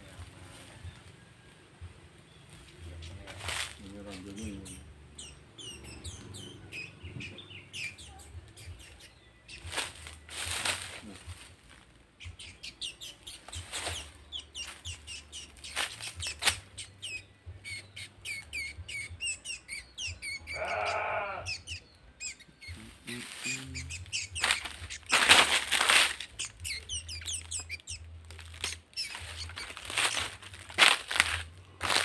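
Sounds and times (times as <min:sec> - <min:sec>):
small birds chirping: 0:00.0 - 0:32.0
rustling bursts: 0:22.9 - 0:26.6, 0:28.4 - 0:32.0.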